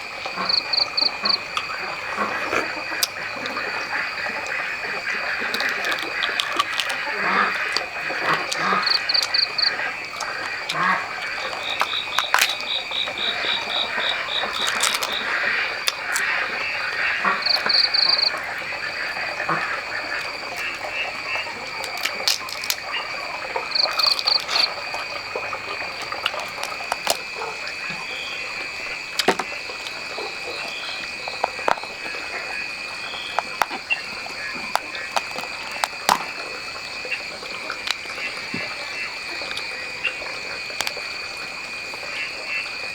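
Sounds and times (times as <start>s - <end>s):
frogs and insects trilling: 0.0s - 42.9s
sharp clicks: 5.4s - 18.3s.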